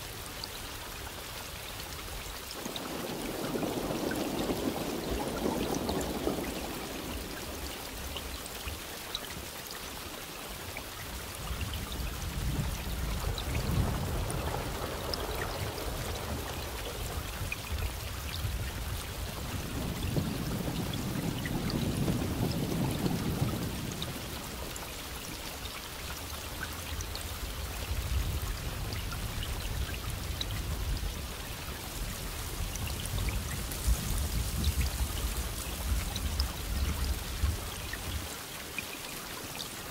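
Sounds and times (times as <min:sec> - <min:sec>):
heavy rain: 0:00.0 - 0:39.9
distant thunder rumbling: 0:02.5 - 0:08.9, 0:12.1 - 0:25.2.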